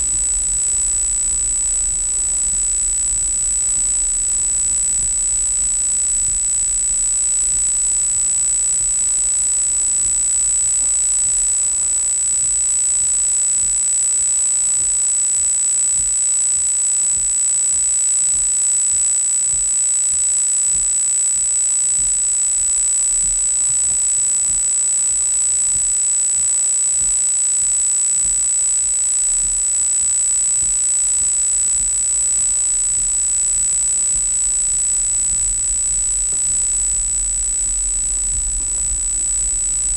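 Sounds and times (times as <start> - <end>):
high-pitched electronic whine: 0.0 - 18.6, 27.1 - 39.9
faint low rumble: 34.1 - 39.9.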